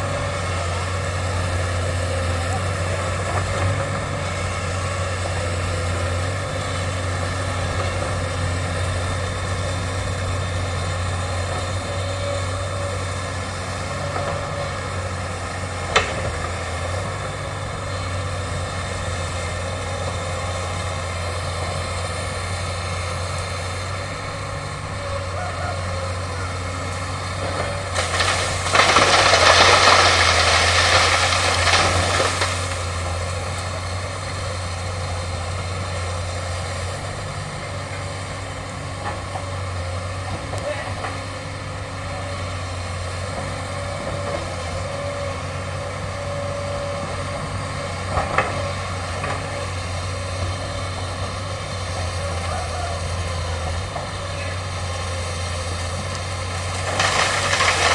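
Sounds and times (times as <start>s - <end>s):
machine working through bamboo: 0.0s - 36.3s, 48.1s - 57.9s
excavator diesel engine running: 0.0s - 57.9s
sharp crack: 27.5s - 33.7s, 56.1s - 57.9s.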